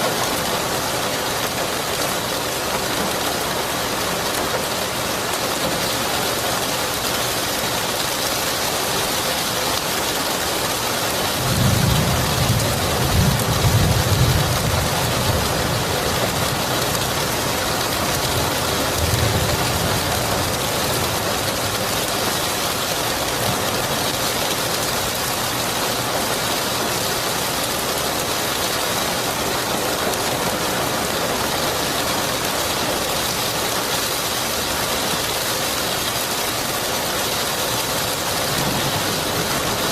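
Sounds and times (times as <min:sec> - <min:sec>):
heavy rain: 0:00.0 - 0:39.9
thunder rumbling: 0:11.3 - 0:22.5, 0:38.4 - 0:39.9.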